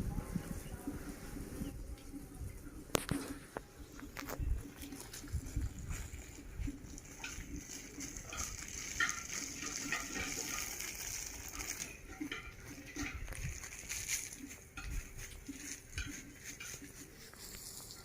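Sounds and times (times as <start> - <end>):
water splashing and running: 4.6 - 18.0.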